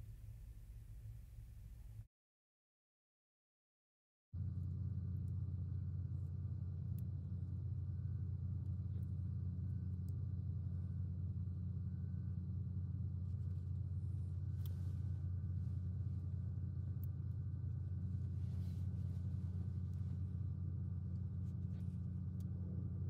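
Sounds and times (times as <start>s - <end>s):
steady low hum: 0.0s - 2.1s, 4.4s - 23.0s.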